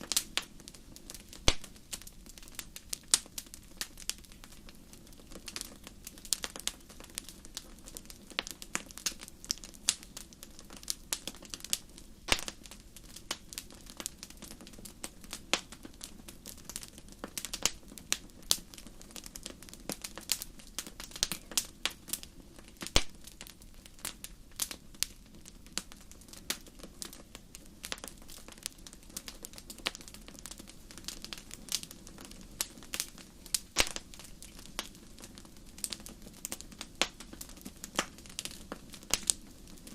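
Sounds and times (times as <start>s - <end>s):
campfire crackling: 0.0s - 39.9s
hiss of burning: 0.0s - 39.9s.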